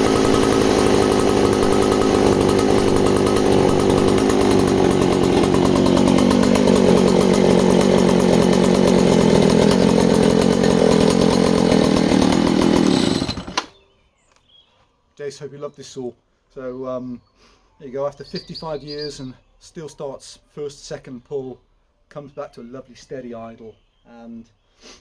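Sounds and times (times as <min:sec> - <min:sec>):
chainsaw engine idling: 0:00.0 - 0:13.7.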